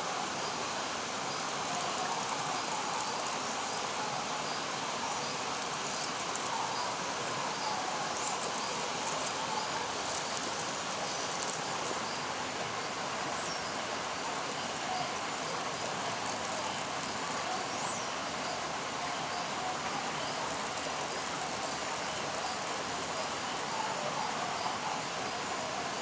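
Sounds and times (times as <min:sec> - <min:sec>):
small chirps: 0:01.0 - 0:12.2, 0:14.3 - 0:17.7, 0:20.2 - 0:23.9.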